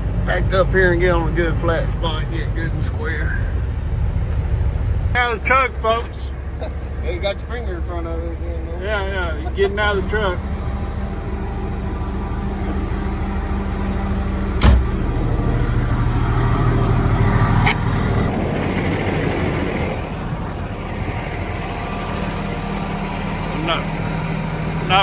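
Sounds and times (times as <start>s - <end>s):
diesel truck engine idling: 0.0s - 25.0s
sharp knock: 14.6s - 15.0s.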